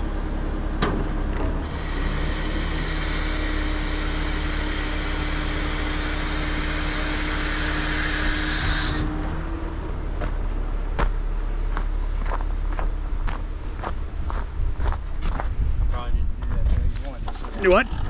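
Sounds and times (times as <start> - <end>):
truck diesel engine running: 0.0 - 15.3
loud even hiss: 1.6 - 9.1.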